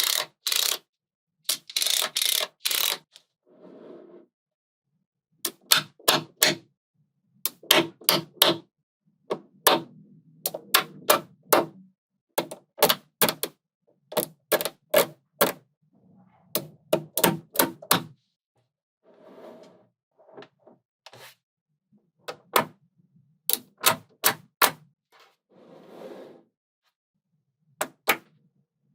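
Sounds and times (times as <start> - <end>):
magnetic balls clicking together: 0.0 - 0.8, 1.5 - 3.2.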